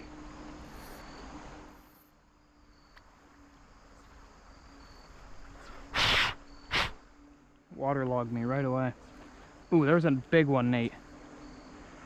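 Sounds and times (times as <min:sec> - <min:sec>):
crickets chirping: 0:00.0 - 0:12.0
stream hush: 0:02.9 - 0:12.0.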